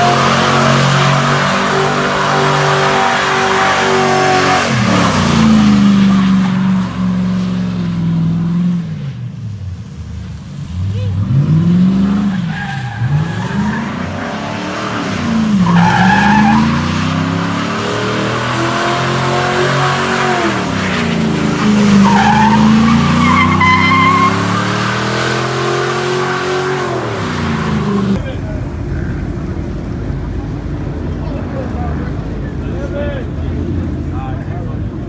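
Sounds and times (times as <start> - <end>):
tyres squealing: 0.0 - 8.7, 11.9 - 29.7
car engine revving: 0.0 - 35.0.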